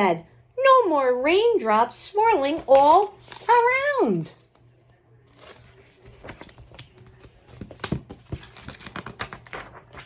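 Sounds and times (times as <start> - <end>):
book pages turning: 2.5 - 10.0.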